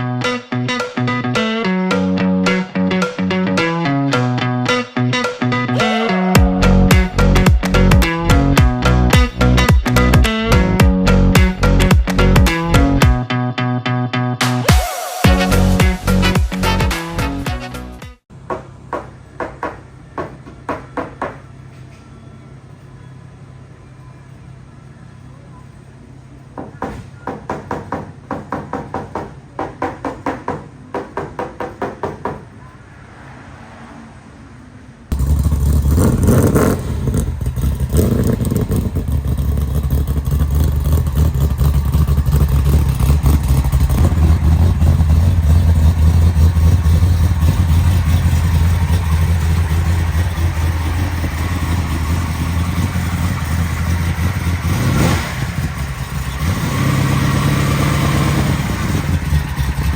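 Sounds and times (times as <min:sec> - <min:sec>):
car engine rumbling: 0:06.3 - 0:13.2, 0:22.5 - 0:59.9.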